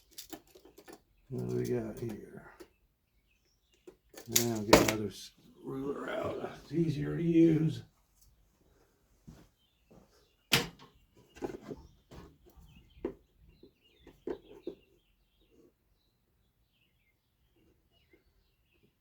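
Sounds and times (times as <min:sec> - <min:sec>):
tools knocking and clattering: 0:00.0 - 0:02.7, 0:03.8 - 0:05.0.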